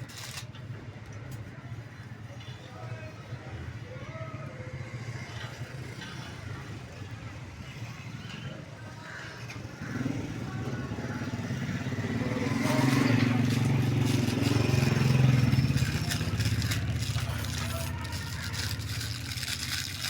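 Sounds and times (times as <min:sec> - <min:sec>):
vehicle engine passing: 0:09.7 - 0:20.0.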